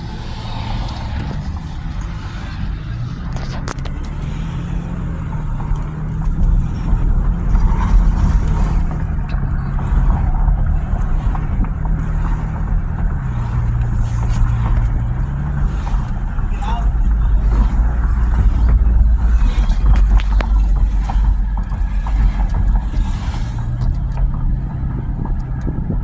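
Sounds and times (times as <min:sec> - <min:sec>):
truck engine and road rumble: 0:00.0 - 0:26.0.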